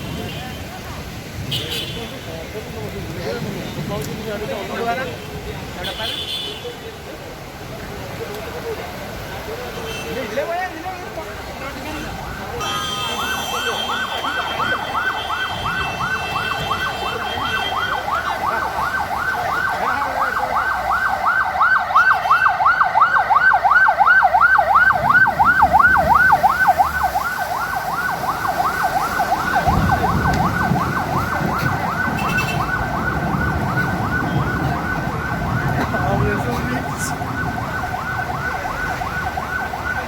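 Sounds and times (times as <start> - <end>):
siren fast warble: 13.2 - 40.0.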